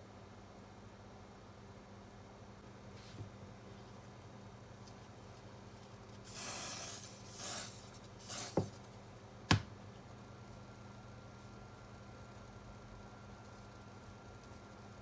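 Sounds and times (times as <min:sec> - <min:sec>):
spray paint hissing: 0:06.2 - 0:08.8.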